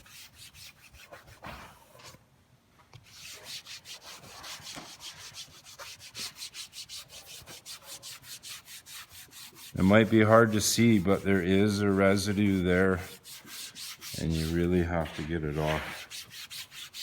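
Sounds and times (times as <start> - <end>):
rag rubbing on wooden panel: 3.1 - 17.0.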